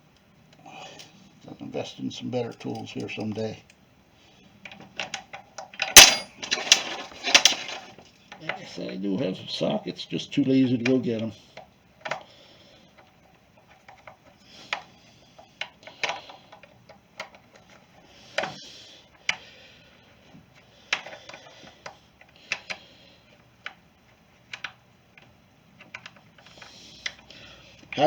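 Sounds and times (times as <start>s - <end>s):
hand tools clicking and tapping: 4.6s - 6.8s.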